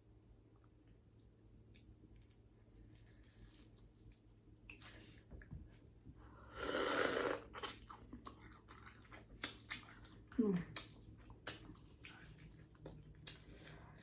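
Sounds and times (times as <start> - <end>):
loud slurping suck: 6.5 - 7.5
person chewing: 6.7 - 13.7.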